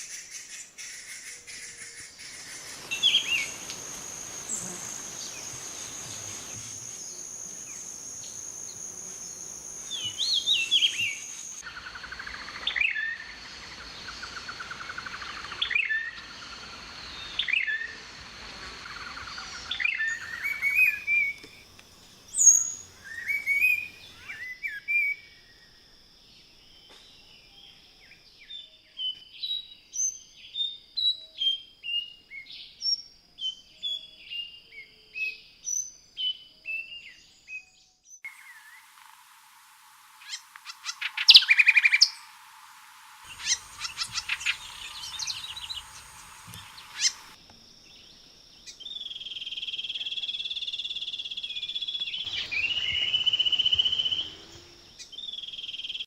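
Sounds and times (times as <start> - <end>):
high-pitched insect drone: 2.3 - 24.5, 38.3 - 47.5, 52.3 - 56.0
birds calling and chirping: 40.2 - 47.4, 51.2 - 56.0
bird's short repeated calls: 43.2 - 47.4.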